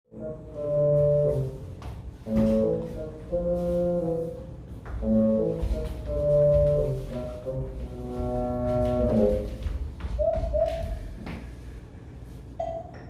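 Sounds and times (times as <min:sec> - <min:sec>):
brass ensemble playing chords: 0:00.1 - 0:09.6.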